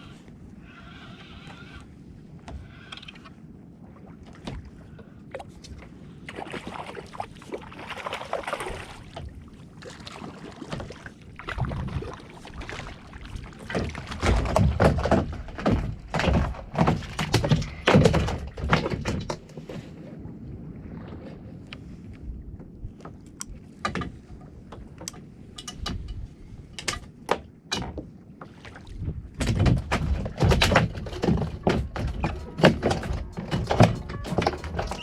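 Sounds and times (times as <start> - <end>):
water splashing: 6.3 - 15.7, 29.9 - 35.0
fish thumping against kayak: 13.6 - 19.6, 29.4 - 35.0.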